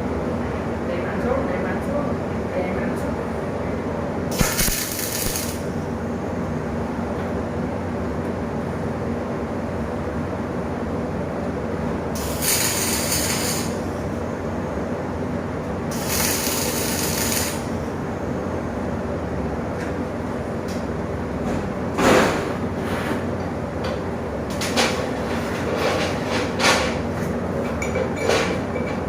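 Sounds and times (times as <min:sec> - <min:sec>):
workshop hum: 0:00.0 - 0:29.0
welding arc hissing: 0:04.3 - 0:05.8, 0:12.2 - 0:14.1, 0:15.9 - 0:17.8.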